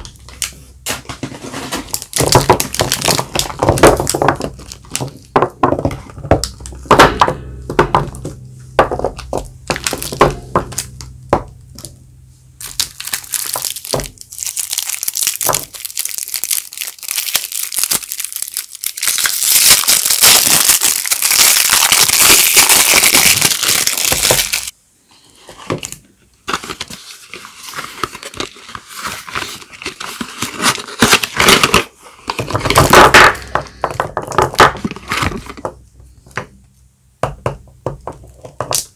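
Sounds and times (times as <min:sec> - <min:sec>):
wrappers crinkling and tearing: 0:01.4 - 0:05.3, 0:12.6 - 0:24.7, 0:25.8 - 0:33.3.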